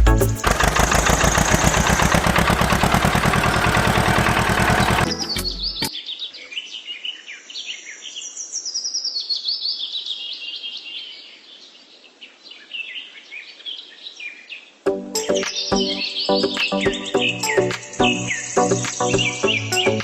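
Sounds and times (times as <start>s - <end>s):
music: 0.0s - 0.5s, 5.0s - 5.9s, 14.9s - 20.0s
birds chirping and trilling: 4.7s - 20.0s.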